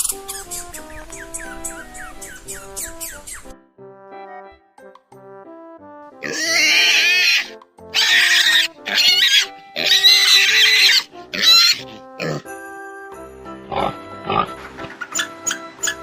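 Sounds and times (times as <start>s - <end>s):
light background music: 0.0s - 16.0s
pig squealing: 6.2s - 12.5s, 13.7s - 16.0s.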